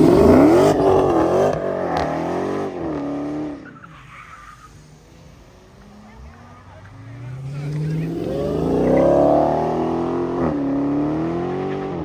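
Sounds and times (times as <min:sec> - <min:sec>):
car accelerating past: 0:05.2 - 0:12.0.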